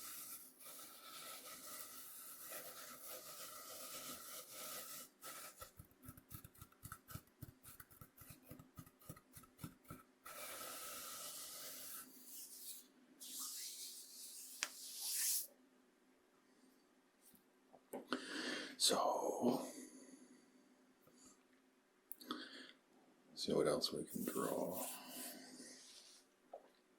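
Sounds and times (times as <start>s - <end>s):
cornmeal scraped on cutting board: 0.0s - 15.5s, 24.1s - 25.8s.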